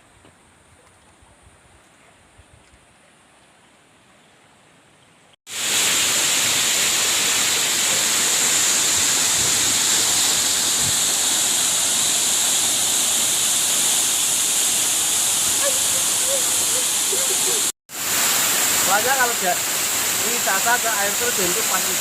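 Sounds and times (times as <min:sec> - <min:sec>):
waterfall rushing: 0:05.5 - 0:22.0.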